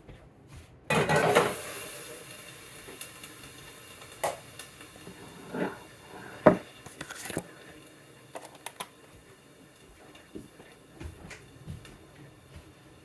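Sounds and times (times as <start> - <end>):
cookware and utensils clattering: 0.9 - 2.3, 4.2 - 7.7.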